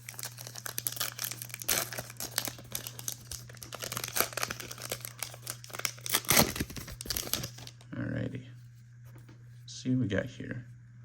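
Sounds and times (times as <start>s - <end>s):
plastic wrapper crinkling and tearing: 0.0s - 7.8s
steady low hum: 0.0s - 11.0s.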